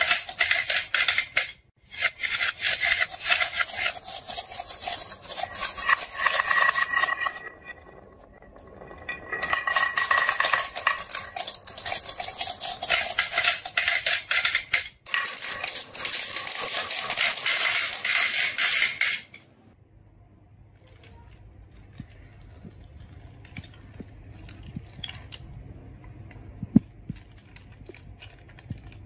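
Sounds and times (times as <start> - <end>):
marbles clattering down a marble run: 2.8 - 19.3.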